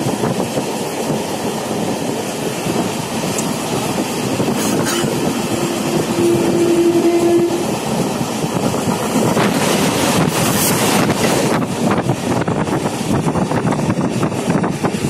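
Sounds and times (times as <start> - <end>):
moving train running noise: 0.0 - 15.0
passing train rushing: 0.0 - 15.0
train horn: 4.6 - 7.9.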